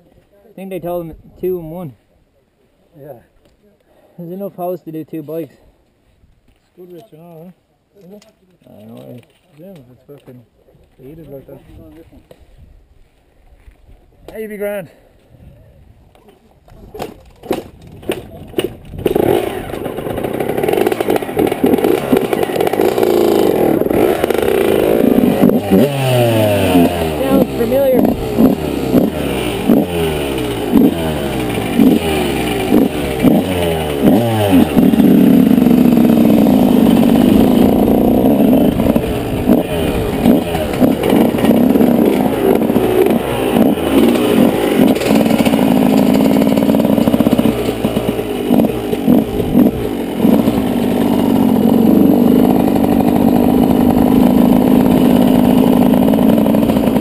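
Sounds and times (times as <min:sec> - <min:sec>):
two-stroke motorcycle revving: 0:17.0 - 0:57.0.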